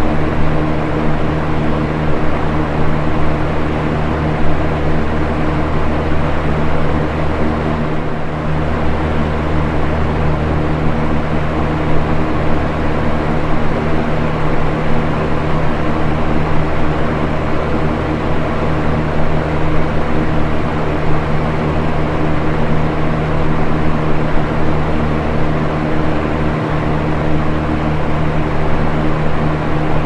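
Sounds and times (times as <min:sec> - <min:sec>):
low motor hum: 0:00.0 - 0:30.0.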